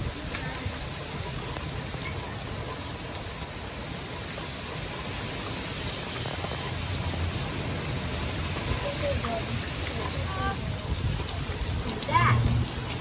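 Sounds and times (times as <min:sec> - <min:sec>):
rain and wind rushing: 0:00.0 - 0:13.0
low fluctuating rumble: 0:06.6 - 0:13.0.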